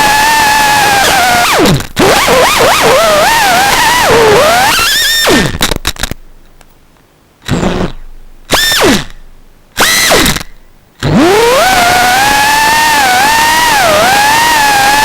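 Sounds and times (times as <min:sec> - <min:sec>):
drone motors whining: 0:00.0 - 0:05.6, 0:07.5 - 0:09.2, 0:09.8 - 0:15.0
sharp clicks: 0:04.8 - 0:06.8, 0:09.8 - 0:11.7.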